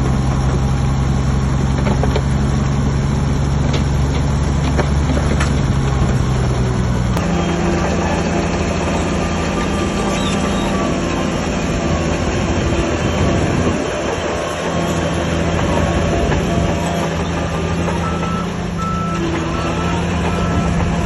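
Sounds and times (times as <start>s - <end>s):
bulldozer diesel engine under load: 0.0s - 21.0s
steel tracks squealing and clattering: 7.2s - 21.0s.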